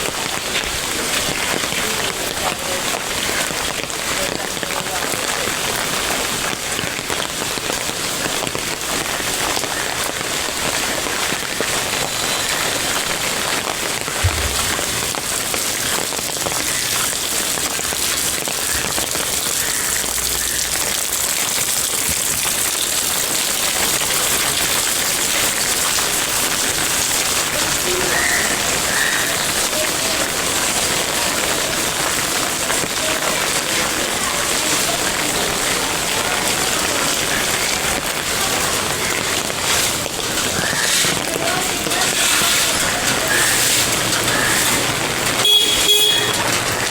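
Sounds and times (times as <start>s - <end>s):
heavy rain falling: 0.0s - 46.9s
low thump: 14.2s - 15.3s.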